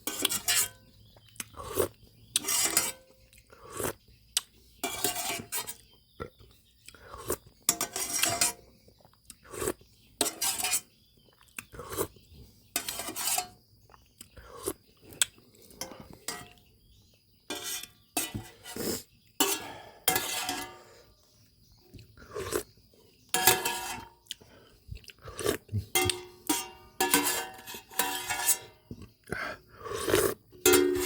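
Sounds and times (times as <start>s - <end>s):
eating sounds: 1.1s - 2.4s, 3.3s - 4.5s, 6.2s - 7.6s, 8.9s - 10.0s, 11.2s - 12.3s, 13.9s - 16.2s, 21.8s - 22.8s, 24.2s - 26.2s, 28.9s - 30.6s
spoon clinking against a bowl: 23.4s - 24.2s, 26.0s - 28.8s, 30.6s - 31.0s.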